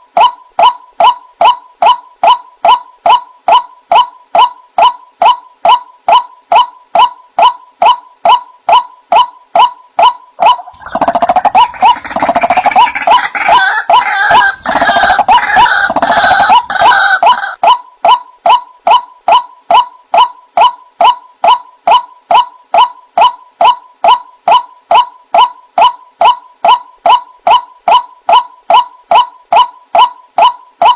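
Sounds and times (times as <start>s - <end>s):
harsh overlapping bird calls: 0.0s - 30.9s
waterhen calling: 9.6s - 19.1s.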